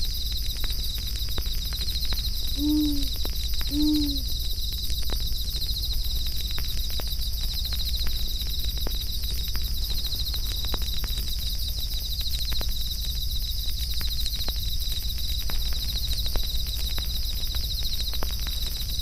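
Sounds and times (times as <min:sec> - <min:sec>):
night insects chirring: 0:00.0 - 0:19.0
owl hooting: 0:02.6 - 0:04.3.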